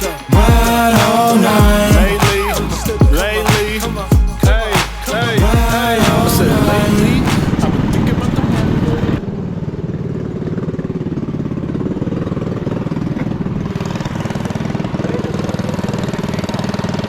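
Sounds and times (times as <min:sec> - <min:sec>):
mini bike engine idling: 0:09.2 - 0:17.0.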